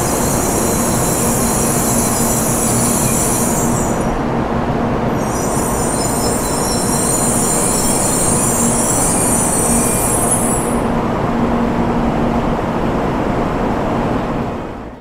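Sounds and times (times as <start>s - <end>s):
train rumbling past: 0.0s - 15.0s
high-pitched squeal: 5.2s - 10.8s.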